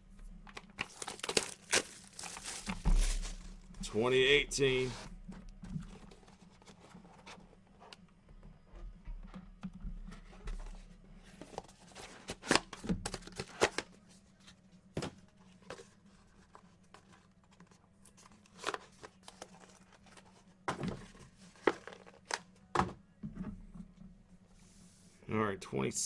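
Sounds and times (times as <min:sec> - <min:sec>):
cardboard rustling and tearing: 0:00.8 - 0:03.6.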